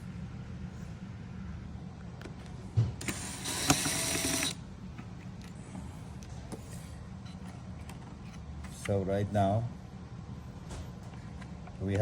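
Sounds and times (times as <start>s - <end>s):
low steady hum: 0.0s - 12.0s
electric screwdriver whirring: 3.0s - 4.6s.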